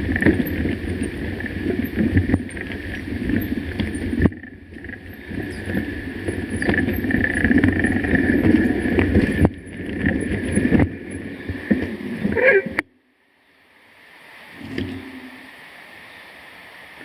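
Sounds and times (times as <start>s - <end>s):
mountain bike on rough trail: 0.0s - 12.8s.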